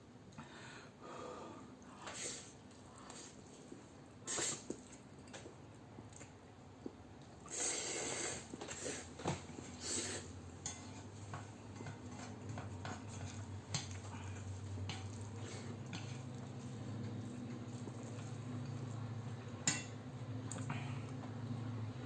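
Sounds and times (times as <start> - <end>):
noisy eating: 1.8 - 21.7.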